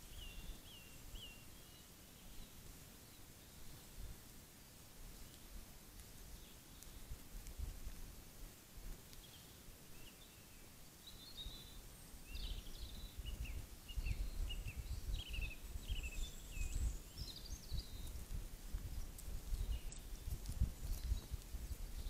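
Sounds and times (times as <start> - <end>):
bird singing chirping notes: 0.0 - 2.5, 9.2 - 18.2.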